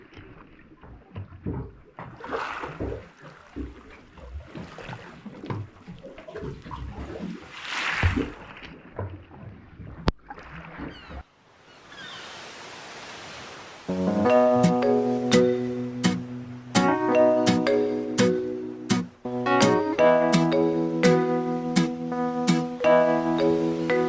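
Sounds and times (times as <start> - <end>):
water splashing and sloshing: 0.0 - 11.3.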